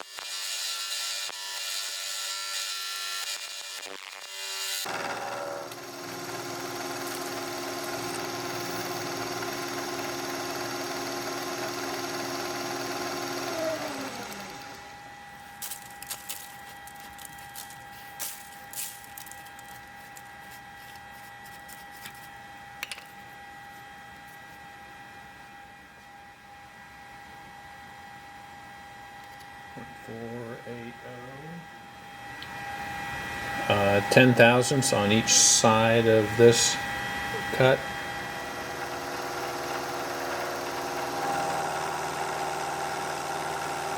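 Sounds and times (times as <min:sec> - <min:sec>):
electric motor running and winding down: 0:00.0 - 0:20.3, 0:30.1 - 0:43.9.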